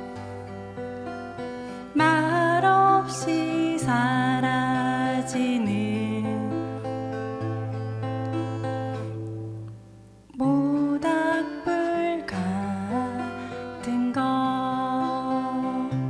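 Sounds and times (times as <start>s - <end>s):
acoustic guitar strumming: 0.0s - 16.0s
person singing: 1.4s - 7.4s, 10.3s - 16.0s.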